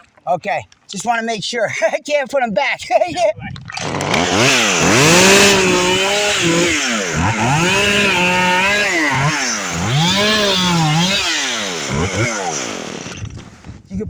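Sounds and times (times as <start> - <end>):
chainsaw revving: 3.7 - 13.9.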